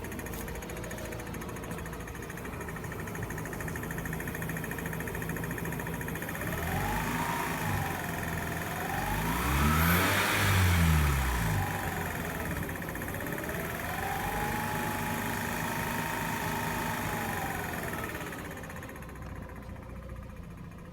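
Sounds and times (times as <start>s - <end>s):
rotary engine revving: 6.4s - 12.6s.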